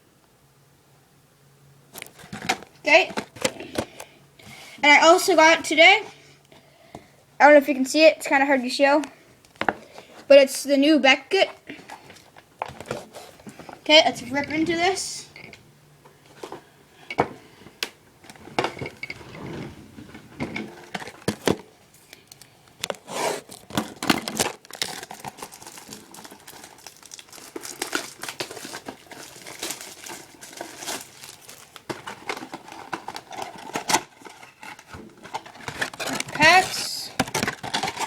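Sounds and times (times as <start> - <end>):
plastic wrap crinkling: 22.2 - 38.0
cardboard box tearing: 23.0 - 34.6.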